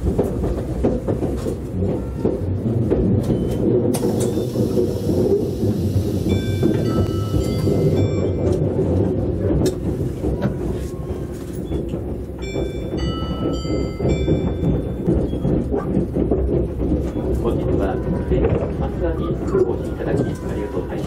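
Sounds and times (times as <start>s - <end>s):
rail click: 0.0s - 21.0s
train rumbling on rails: 0.0s - 21.0s
bell-like chime: 6.2s - 8.6s.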